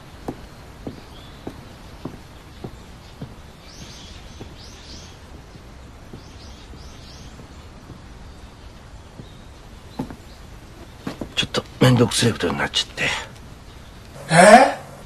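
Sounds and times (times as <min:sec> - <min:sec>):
soft footsteps: 0:00.0 - 0:12.0
outdoor background hum: 0:00.0 - 0:15.0
small birds chirping: 0:00.0 - 0:15.0.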